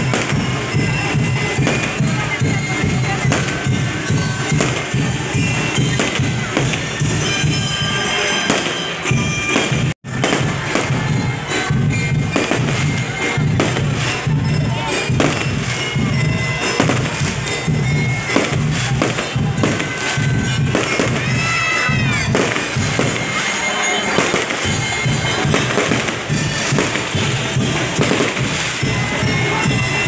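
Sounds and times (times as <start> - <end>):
fireworks bursting and crackling: 0.0 - 30.0
music with steady beat: 0.0 - 30.0.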